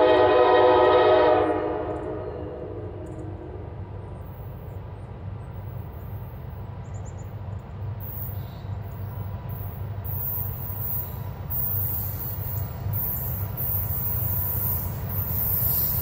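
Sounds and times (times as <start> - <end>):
distant diesel locomotive rumble: 0.0 - 16.0.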